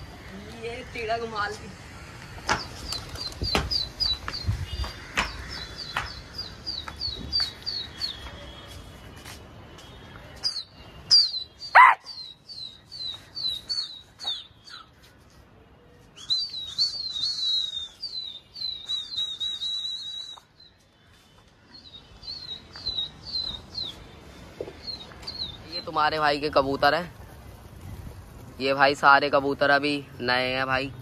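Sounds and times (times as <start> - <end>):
birds chirping: 0.0 - 9.1, 9.7 - 31.0
lower falling bird call: 16.1 - 25.6.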